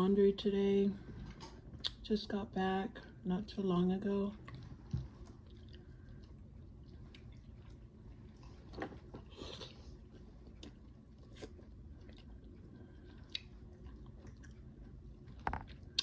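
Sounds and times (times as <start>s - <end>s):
person chewing soft food: 4.4s - 16.0s
faint mouth clicks and smacks: 10.4s - 14.7s.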